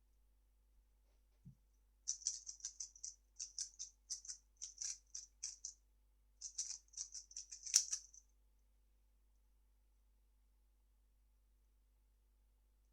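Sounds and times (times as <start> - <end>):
plastic puzzle cube clicking: 6.4 - 8.1.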